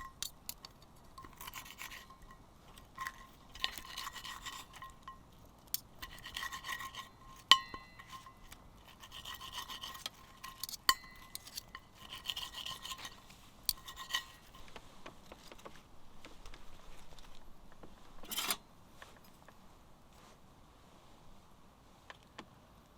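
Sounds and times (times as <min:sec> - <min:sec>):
metal scraping on metal: 0:00.0 - 0:14.7, 0:18.2 - 0:18.6
sharp metallic clinks: 0:07.4 - 0:08.4, 0:10.4 - 0:11.9.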